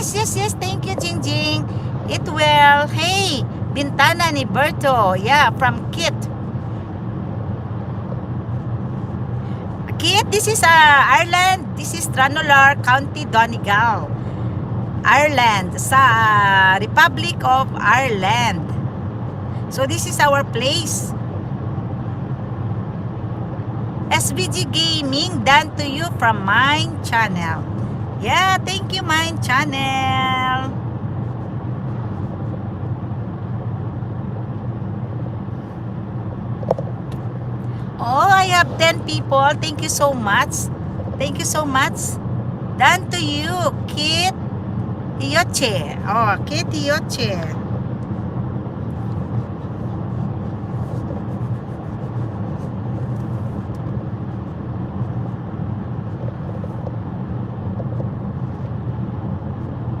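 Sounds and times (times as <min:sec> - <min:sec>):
car road and engine hum: 0:00.0 - 1:00.0.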